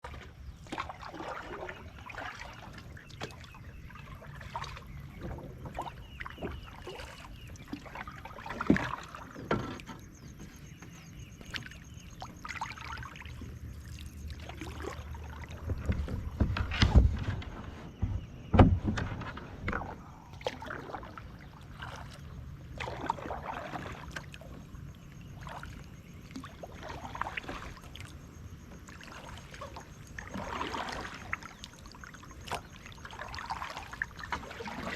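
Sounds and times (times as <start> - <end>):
water trickling: 0.0 - 16.6, 19.7 - 34.9
paddle splashing in water: 0.0 - 34.9
knocks and thumps: 15.6 - 19.9.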